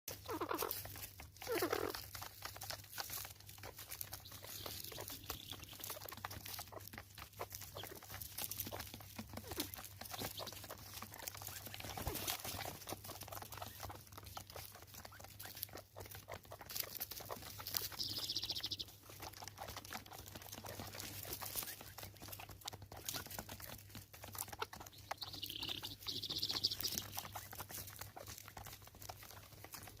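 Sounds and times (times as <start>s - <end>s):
guineafowl harsh calls: 0.1s - 2.0s, 24.8s - 27.6s
high-pitched bird calls: 0.1s - 2.0s, 2.7s - 6.8s, 7.4s - 14.0s, 15.1s - 19.7s, 24.4s - 28.3s.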